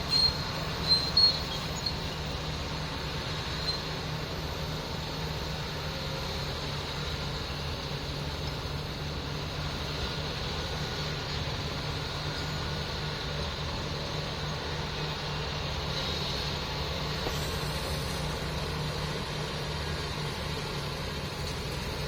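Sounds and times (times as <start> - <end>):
diesel engine running steadily: 0.0 - 22.0.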